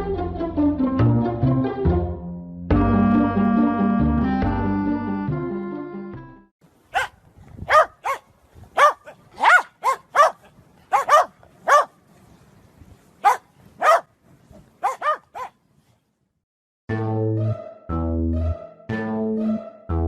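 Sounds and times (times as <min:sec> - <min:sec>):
music: 0:00.0 - 0:06.5, 0:16.9 - 0:20.0
dog barking: 0:06.9 - 0:12.0, 0:13.2 - 0:14.1, 0:14.8 - 0:15.6.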